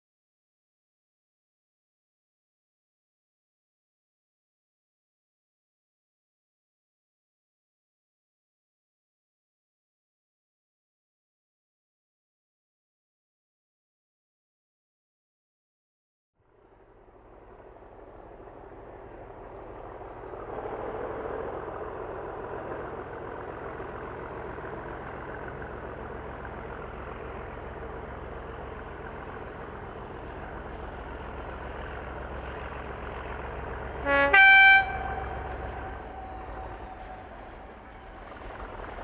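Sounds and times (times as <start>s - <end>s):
diesel locomotive engine rumble: 16.4s - 39.0s
two-tone train horn: 33.7s - 39.0s.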